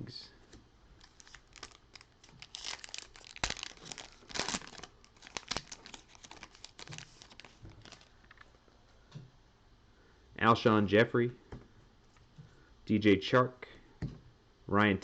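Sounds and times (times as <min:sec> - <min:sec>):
foil wrapper tearing and crinkling: 0:01.0 - 0:08.4.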